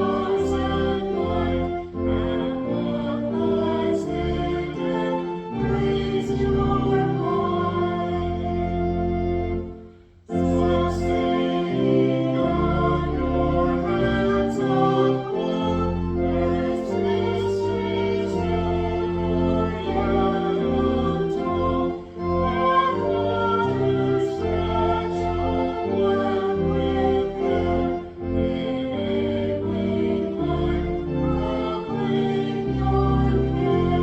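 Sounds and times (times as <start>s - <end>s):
organ playing: 0.0s - 34.0s
voices singing a hymn: 0.0s - 34.0s.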